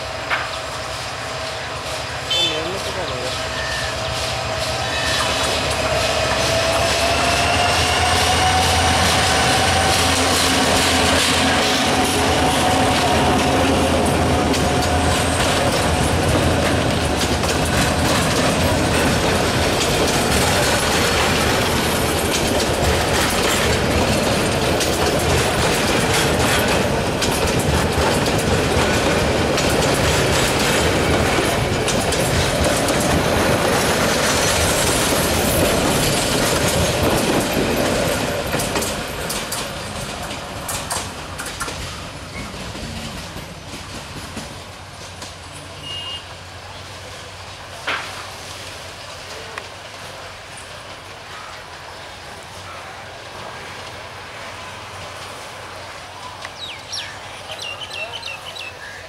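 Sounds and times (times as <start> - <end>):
train wheels clattering over joints: 0.1 - 45.6.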